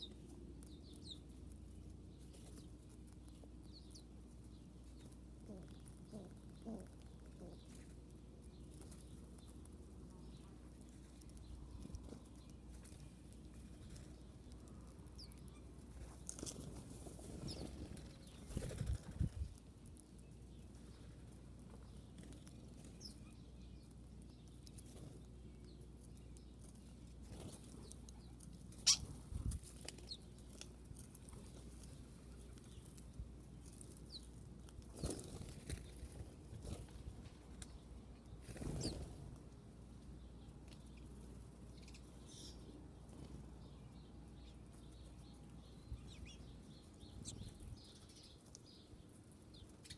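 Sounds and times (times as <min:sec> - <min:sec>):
faint bird chirps: 0:08.6 - 0:16.6, 0:27.3 - 0:30.3, 0:37.6 - 0:39.2, 0:40.3 - 0:49.9.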